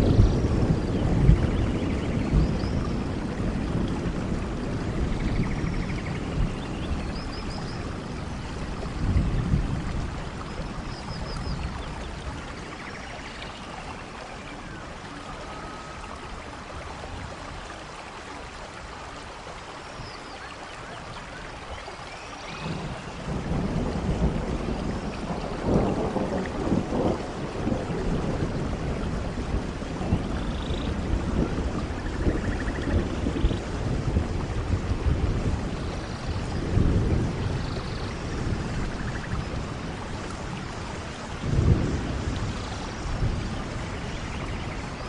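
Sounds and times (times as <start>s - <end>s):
low rumble of thunder: 0.0s - 18.0s, 22.4s - 45.0s
steady rain: 0.0s - 45.0s.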